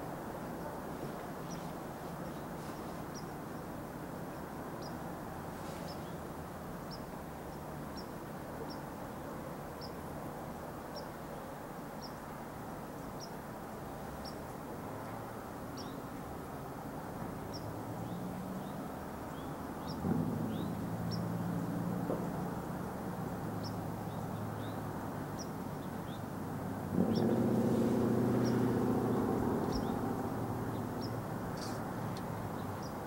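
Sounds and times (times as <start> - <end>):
low background rumble: 20.0 - 33.0
small bird chipping: 30.7 - 33.0.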